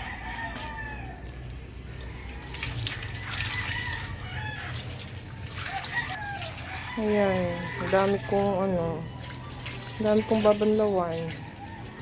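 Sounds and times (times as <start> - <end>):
roosters crowing: 0.0 - 10.5, 11.4 - 12.0
water running and splashing: 2.4 - 12.0.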